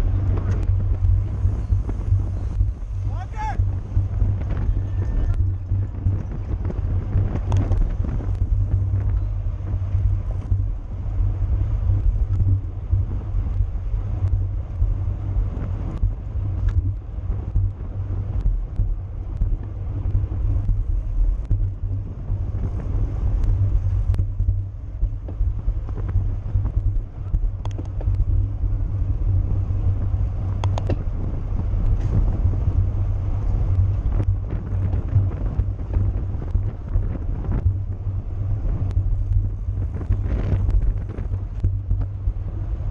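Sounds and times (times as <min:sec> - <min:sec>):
wind buffeting microphone: 0:00.0 - 0:42.9
sharp clicks and knocks: 0:25.2 - 0:28.3, 0:30.6 - 0:31.1.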